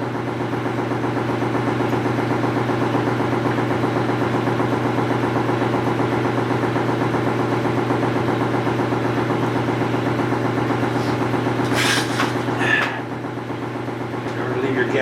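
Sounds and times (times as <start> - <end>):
steady motor hum: 0.0 - 15.0
short clattering noises: 11.0 - 13.0.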